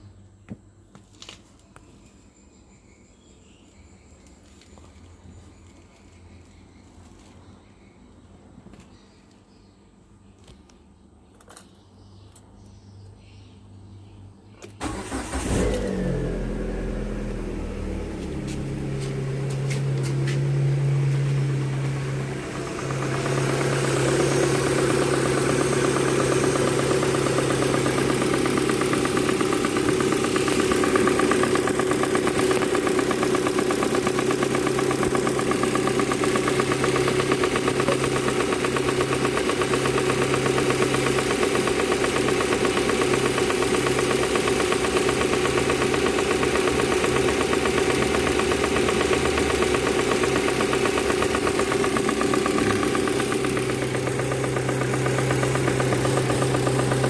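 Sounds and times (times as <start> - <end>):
car engine idling: 14.8 - 57.0.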